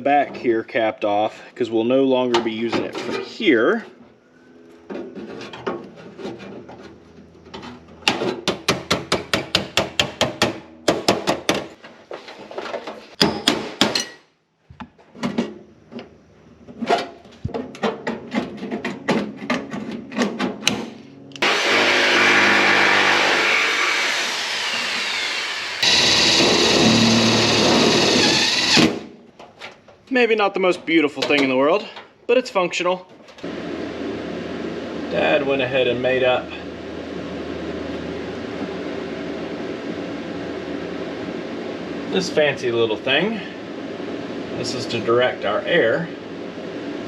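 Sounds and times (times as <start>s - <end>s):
power tool running: 21.1s - 29.1s.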